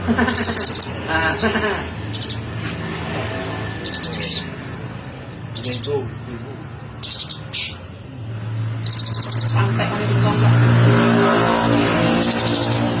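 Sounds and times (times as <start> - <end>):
vehicle engine hum: 0.0 - 13.0
bird chirping trills: 0.2 - 2.6, 3.7 - 4.8, 5.4 - 6.2, 6.9 - 8.0, 8.6 - 10.2, 11.4 - 13.0.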